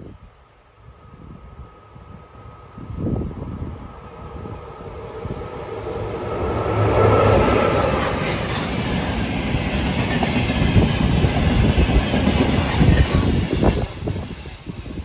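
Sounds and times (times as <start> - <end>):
electric locomotive passing: 0.0 - 15.0
wheels clacking over rail joints: 7.2 - 14.0.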